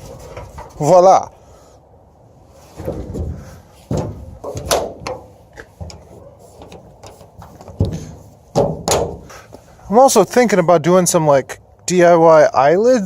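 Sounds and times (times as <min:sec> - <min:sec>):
clicks and knocks of car hood pins: 0:02.8 - 0:09.3.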